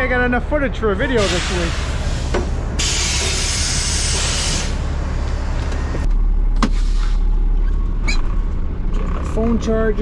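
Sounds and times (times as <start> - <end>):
diesel engine idling: 0.0 - 10.0
air brake hissing: 1.2 - 4.8.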